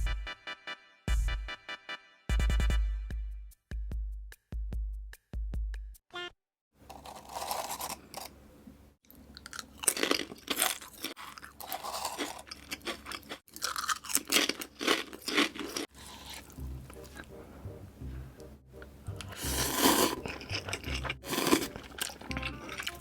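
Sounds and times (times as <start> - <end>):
chewing noodles: 9.3 - 17.3, 19.1 - 23.0.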